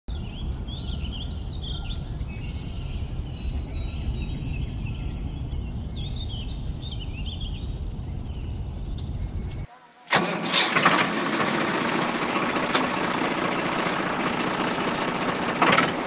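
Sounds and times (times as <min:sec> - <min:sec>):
steady low rumble: 0:00.1 - 0:09.7
birds chirping and singing: 0:00.1 - 0:10.1.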